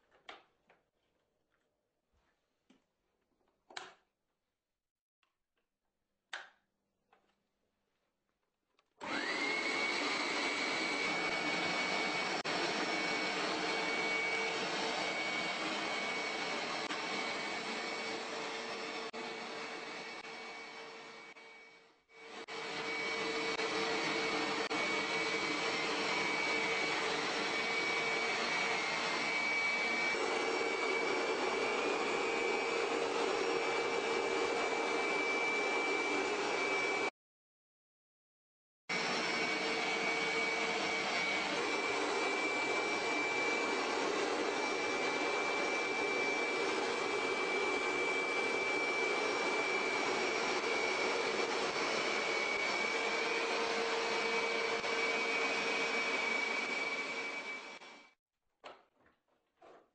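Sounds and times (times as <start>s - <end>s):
vacuum cleaner running: 9.0s - 37.1s, 38.9s - 58.2s.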